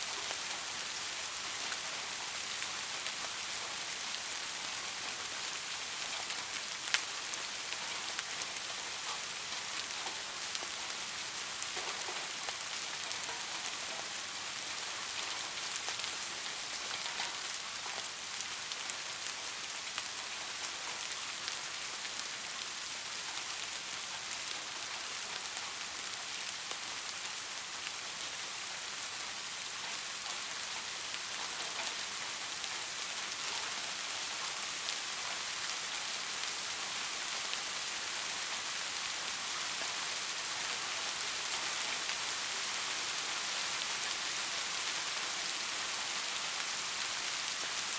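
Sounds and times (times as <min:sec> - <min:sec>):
raindrops pattering: 0:00.0 - 0:47.9
steady rain hiss: 0:00.0 - 0:47.9.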